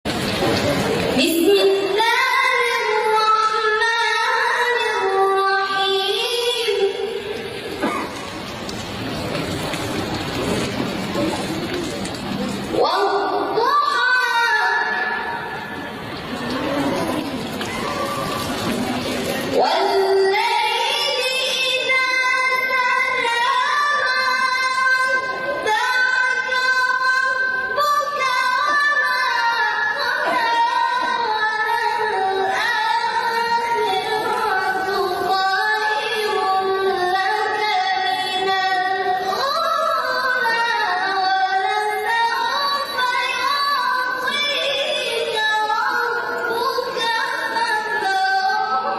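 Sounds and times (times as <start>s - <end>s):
high voice chanting melodically: 19.4s - 48.9s.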